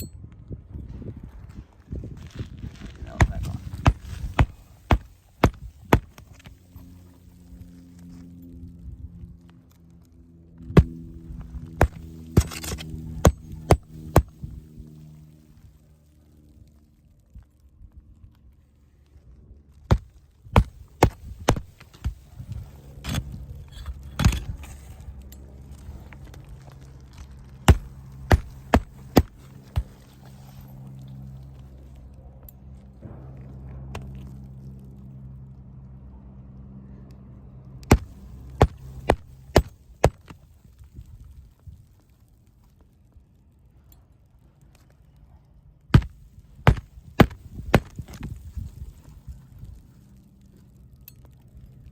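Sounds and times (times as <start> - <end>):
low steady hum: 0.0 - 51.9
hammer striking roofing nails: 3.2 - 6.5, 11.8 - 14.3, 19.9 - 22.2, 27.7 - 30.0, 37.9 - 40.3, 46.0 - 48.1.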